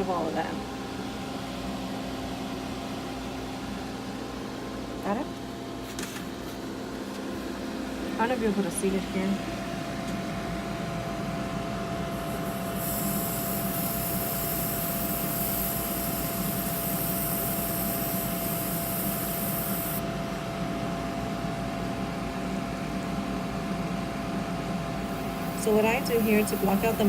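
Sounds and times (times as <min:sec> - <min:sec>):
steady machine hum: 0:00.0 - 0:27.0
sandblaster high hiss: 0:12.2 - 0:20.0, 0:25.1 - 0:27.0.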